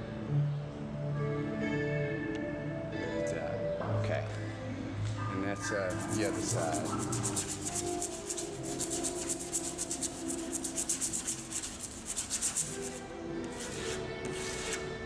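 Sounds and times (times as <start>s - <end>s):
razor blade scraping paint: 5.9s - 14.9s.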